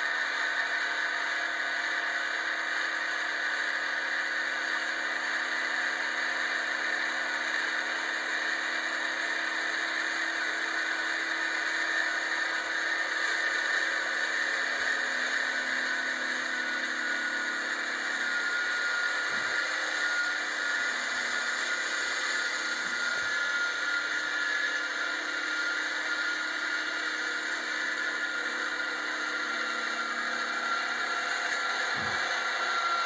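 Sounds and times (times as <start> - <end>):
faint high whine: 0.0 - 33.0.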